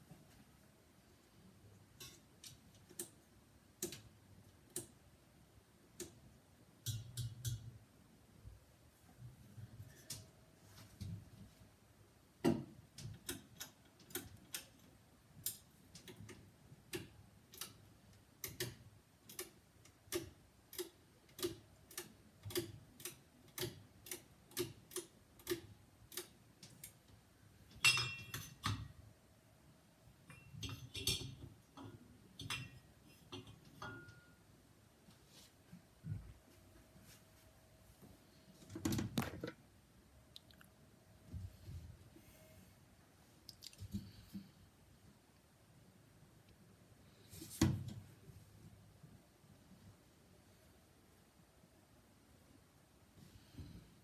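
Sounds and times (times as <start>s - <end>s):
ceiling fan ticking: 1.7s - 7.8s, 12.8s - 27.8s.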